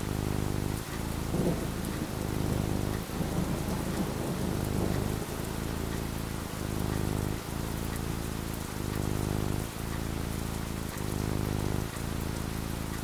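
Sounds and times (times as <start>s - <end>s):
rain falling: 0.0s - 13.0s
low rumbling thunder: 0.4s - 7.6s.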